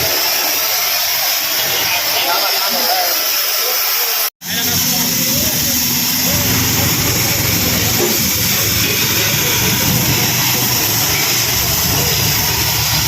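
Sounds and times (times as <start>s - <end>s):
engine running with low pulsing: 4.5s - 13.0s.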